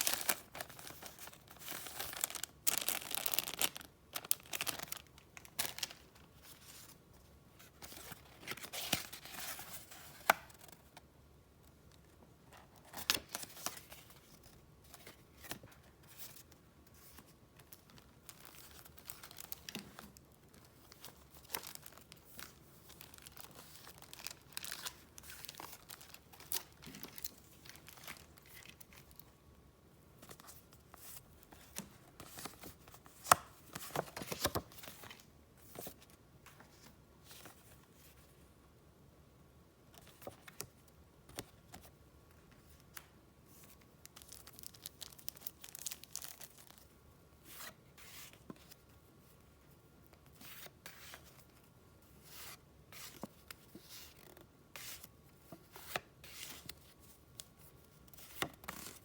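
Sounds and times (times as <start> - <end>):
paper crinkling and rustling: 0.0 - 7.0, 12.5 - 29.3, 30.2 - 37.8, 42.6 - 48.8.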